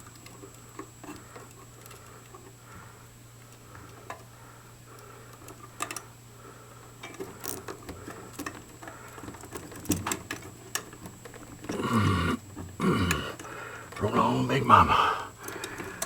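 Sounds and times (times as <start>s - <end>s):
steady low hum: 11.7s - 16.0s.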